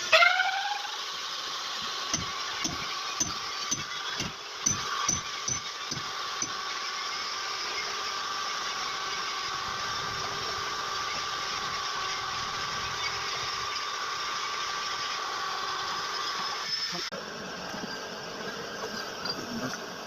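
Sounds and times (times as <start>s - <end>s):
engine thumping: 1.8s - 6.6s.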